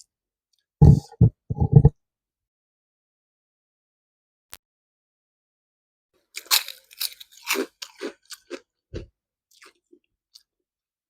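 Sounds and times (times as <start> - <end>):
person chewing crunchy food: 6.2 - 10.6.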